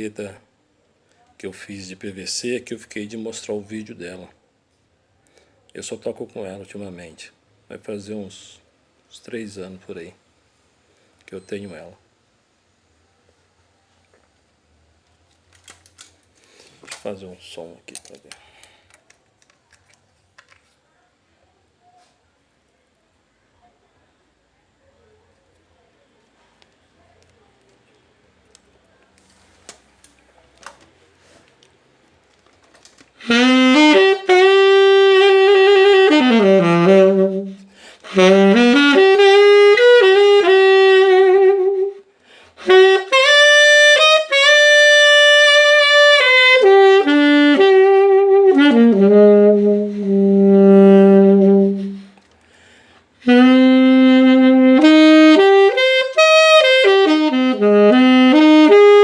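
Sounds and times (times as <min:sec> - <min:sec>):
saxophone slow melody: 0:33.2 - 0:52.2, 0:53.2 - 0:59.0.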